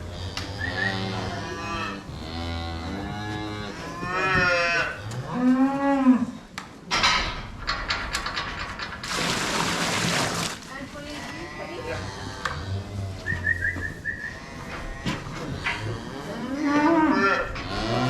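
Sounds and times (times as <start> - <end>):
cattle mooing: 0.0 - 6.4, 11.2 - 18.0.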